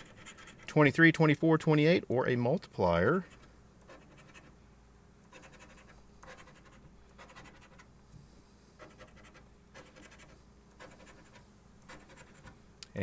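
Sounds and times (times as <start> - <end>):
lottery ticket being scratched: 0.0 - 1.1, 3.1 - 4.6, 5.2 - 7.9, 8.8 - 12.6.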